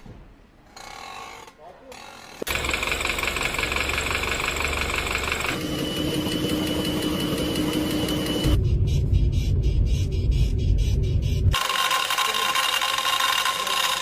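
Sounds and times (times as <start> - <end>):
engine running with fast ticking: 2.5 - 8.6
engine whine: 3.4 - 12.0.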